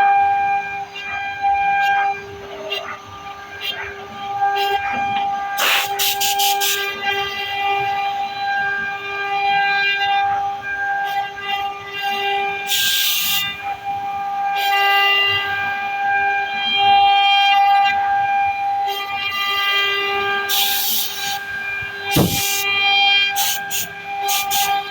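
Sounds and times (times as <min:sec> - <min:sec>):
cnc router whine cutting wood: 0:00.0 - 0:24.9
short bursts of hiss: 0:22.2 - 0:22.6.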